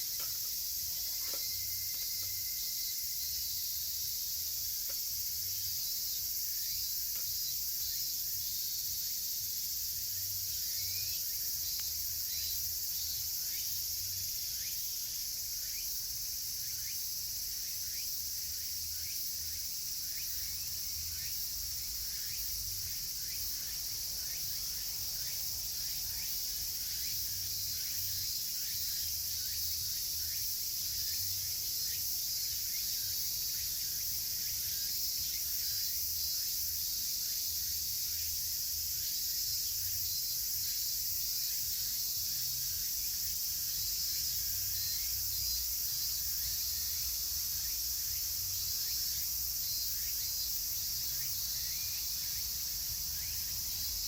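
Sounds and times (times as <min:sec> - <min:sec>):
cicadas droning: 0:00.0 - 0:54.0
faint falling insect calls: 0:00.0 - 0:54.0.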